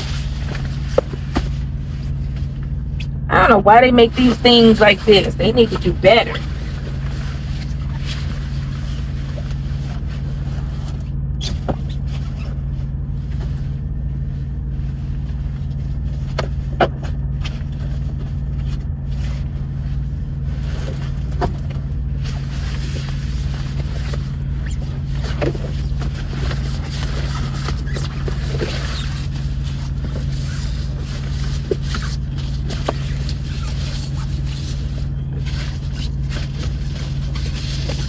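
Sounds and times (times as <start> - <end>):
rustling: 17.4 - 38.0.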